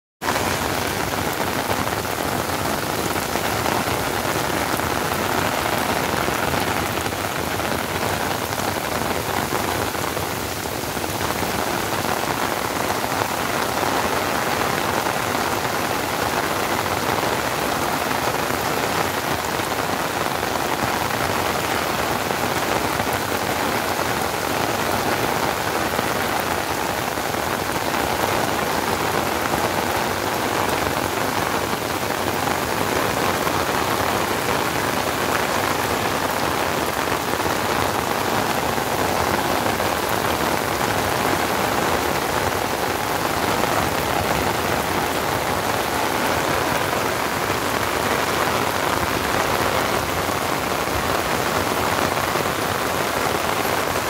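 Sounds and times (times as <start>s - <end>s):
heavy rain pouring on water: 0.2s - 54.0s.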